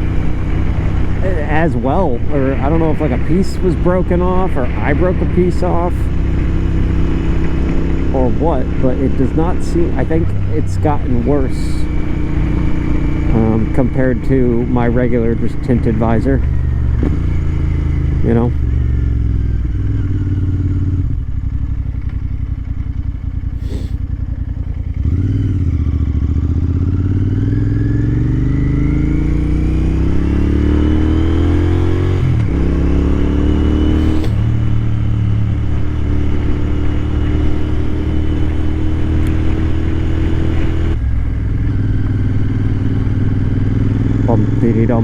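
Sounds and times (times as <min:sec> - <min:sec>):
gear changes: 0:00.0 - 0:45.0
motorcycle engine accelerating: 0:00.0 - 0:45.0.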